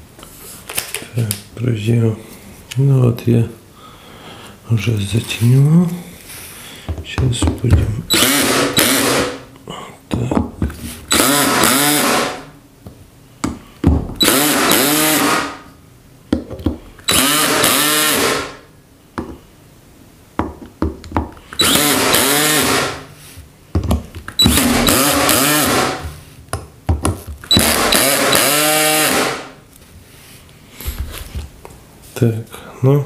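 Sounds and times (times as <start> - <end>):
cordless screwdriver driving screws: 8.1 - 9.3, 11.1 - 12.3, 14.2 - 15.4, 17.1 - 18.4, 21.6 - 22.9, 24.4 - 25.9, 27.5 - 29.3.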